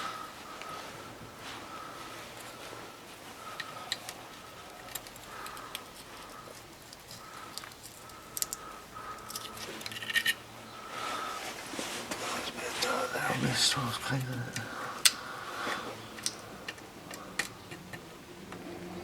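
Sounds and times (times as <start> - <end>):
engine parts clicking and tapping: 3.5 - 10.4, 16.1 - 18.8.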